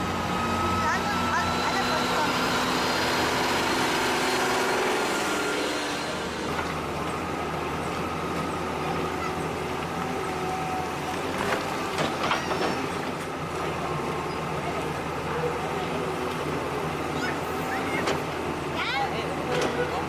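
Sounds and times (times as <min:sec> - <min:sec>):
small electric motors humming: 0:00.2 - 0:06.8.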